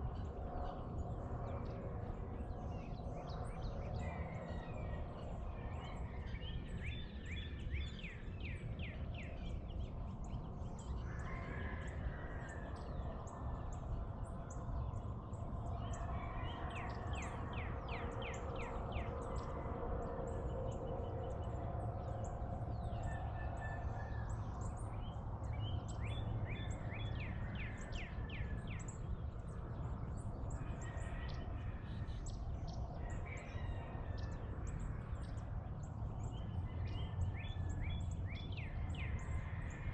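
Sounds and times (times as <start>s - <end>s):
low rumble of background noise: 0.0s - 39.9s.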